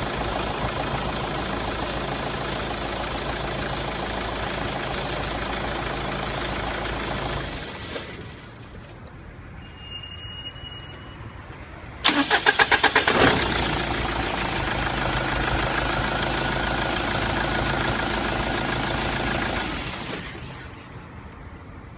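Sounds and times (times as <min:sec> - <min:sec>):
diesel engine idling: 0:00.0 - 0:08.8, 0:12.0 - 0:21.1
diesel engine starter cranking: 0:00.0 - 0:08.8, 0:12.0 - 0:21.1
short high beep: 0:09.6 - 0:11.4.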